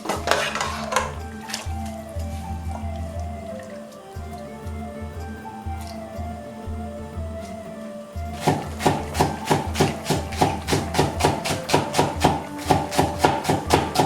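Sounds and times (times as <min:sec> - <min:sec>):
knife chopping on wooden board: 0:08.4 - 0:14.0.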